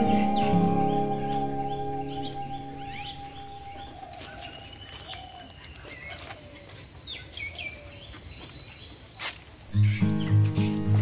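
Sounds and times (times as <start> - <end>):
strummed acoustic guitar music: 0.0 - 3.8, 9.8 - 11.0
birds calling: 0.0 - 8.9, 9.6 - 11.0.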